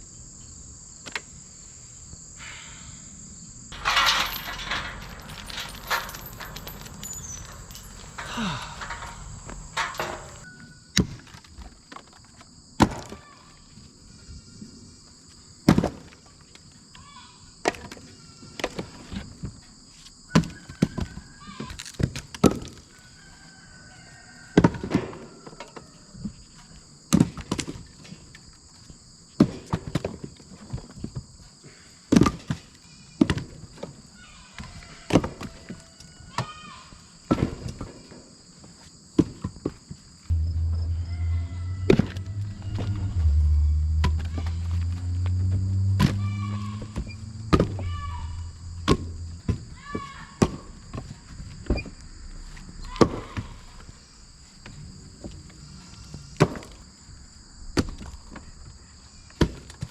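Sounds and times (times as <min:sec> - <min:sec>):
insects chirring: 0:00.0 - 0:24.5, 0:38.0 - 0:59.9.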